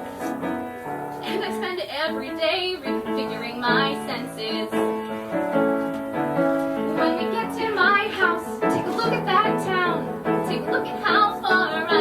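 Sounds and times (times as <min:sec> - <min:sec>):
piano chords: 0:00.0 - 0:12.0
woman singing: 0:01.2 - 0:05.2, 0:06.8 - 0:12.0.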